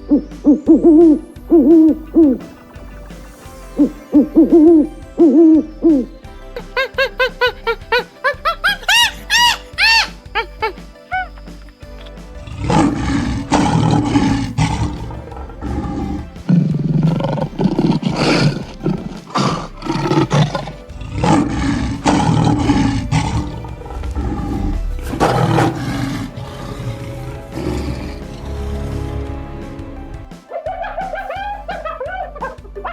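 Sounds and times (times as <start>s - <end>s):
background music: 0.0s - 32.9s
big cat roaring: 12.4s - 29.6s.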